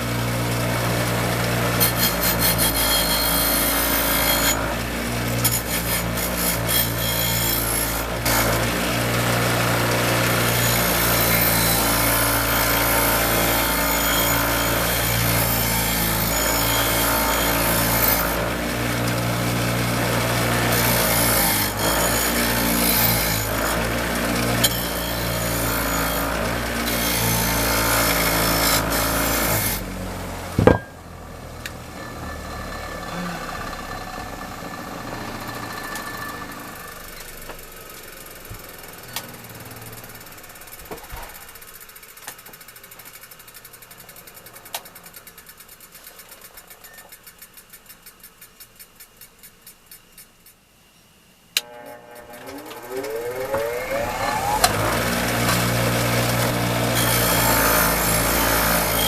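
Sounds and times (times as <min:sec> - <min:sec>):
power tool motor humming: 0:00.0 - 0:30.9, 0:51.6 - 0:59.0
loud clunk: 0:30.6 - 0:31.0.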